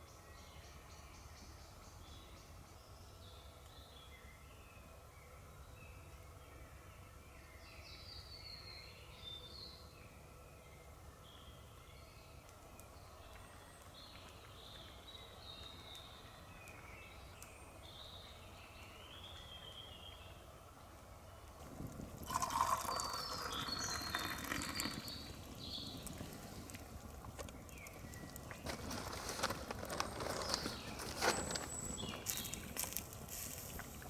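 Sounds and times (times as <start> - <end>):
low steady background noise: 0.0 - 34.0
crackling rustling noise: 21.0 - 34.0.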